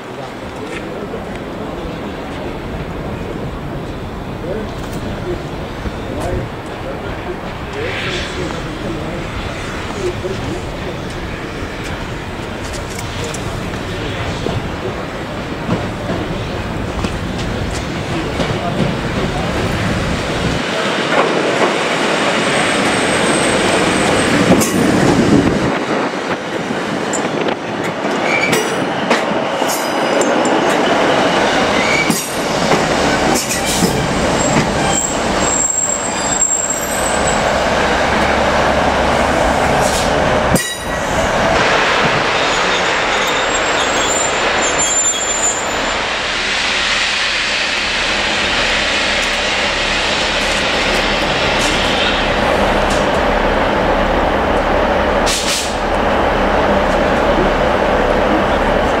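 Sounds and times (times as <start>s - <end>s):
train rumbling on track: 0.0s - 59.0s
high-pitched wheel squeals: 42.5s - 45.9s.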